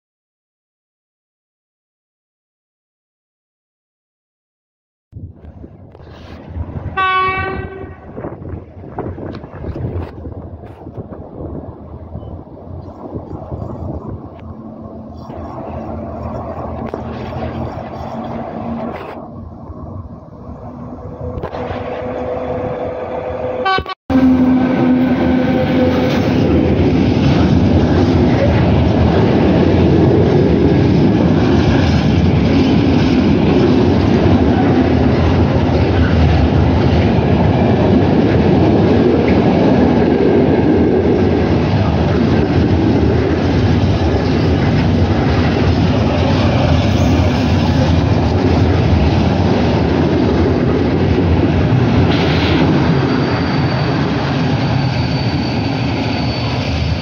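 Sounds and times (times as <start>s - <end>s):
train horn: 7.0s - 8.2s, 21.4s - 26.4s.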